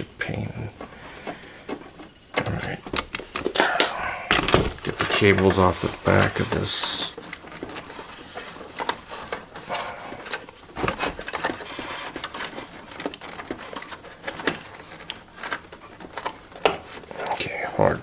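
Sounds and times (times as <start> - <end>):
clicks and knocks of connectors: 0.8 - 6.6.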